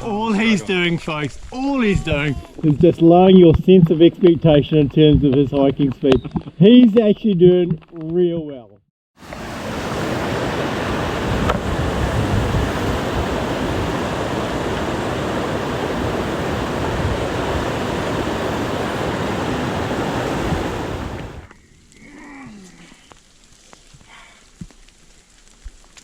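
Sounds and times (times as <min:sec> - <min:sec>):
stream water rushing: 0:09.2 - 0:21.5.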